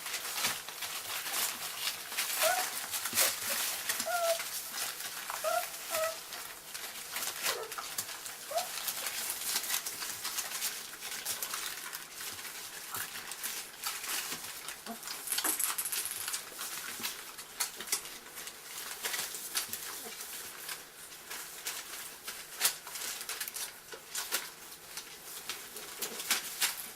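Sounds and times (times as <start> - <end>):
small clicks and rustling: 0.0 - 26.9
puppies squeaking and whimpering: 2.2 - 6.4, 7.4 - 9.2.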